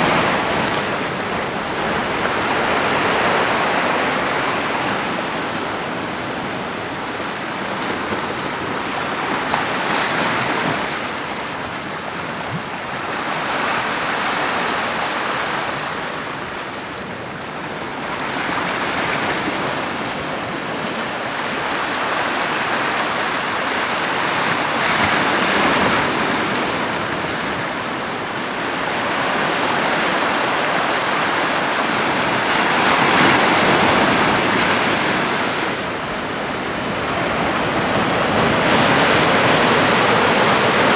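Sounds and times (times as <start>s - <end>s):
surf breaking on shore: 0.0s - 16.5s, 17.8s - 40.9s.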